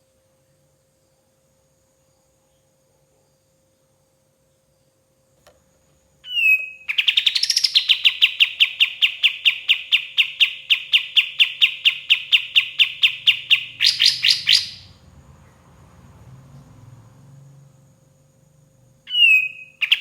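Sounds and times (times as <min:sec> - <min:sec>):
songbird singing: 0:06.2 - 0:20.0.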